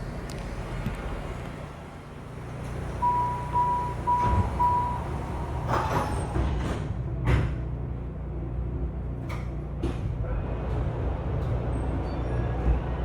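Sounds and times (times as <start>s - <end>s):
stopped train hum: 0.0s - 13.0s
train door warning chime: 3.0s - 5.4s
doors closing thud: 3.4s - 7.7s.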